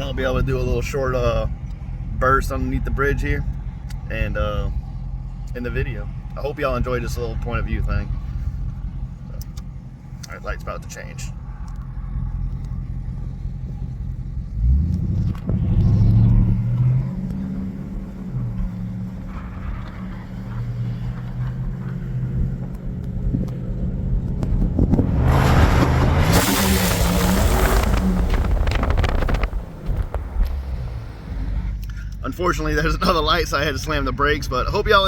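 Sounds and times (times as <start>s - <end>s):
car engine accelerating: 0.0s - 35.0s
wind noise through window: 27.5s - 30.6s.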